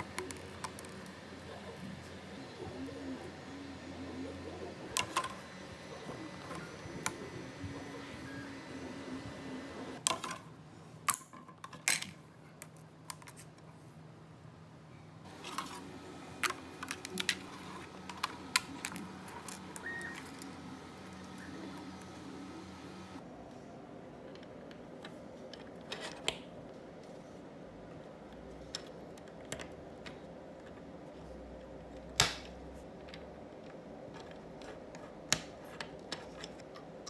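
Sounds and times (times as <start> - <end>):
printer stepper motors humming: 0.0 - 10.0, 15.3 - 23.2.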